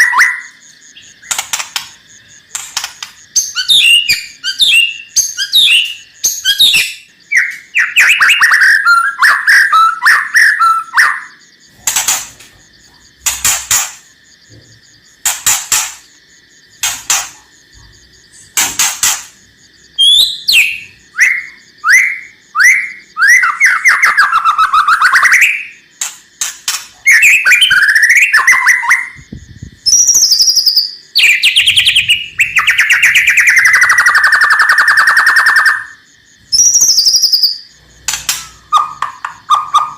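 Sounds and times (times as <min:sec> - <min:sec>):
bird whistled song: 0:00.0 - 0:01.5, 0:03.4 - 0:11.4, 0:20.0 - 0:25.8, 0:27.0 - 0:37.7, 0:38.3 - 0:39.9
bird rattling trill: 0:00.4 - 0:06.8, 0:11.7 - 0:14.1, 0:16.8 - 0:17.5.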